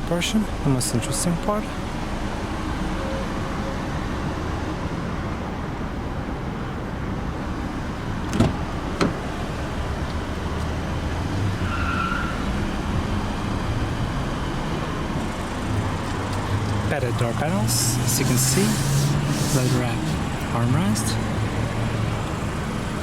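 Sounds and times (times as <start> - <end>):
idling vehicle hum: 0.0 - 23.0
traffic noise: 0.0 - 23.0
car door handle clicks: 8.2 - 9.2.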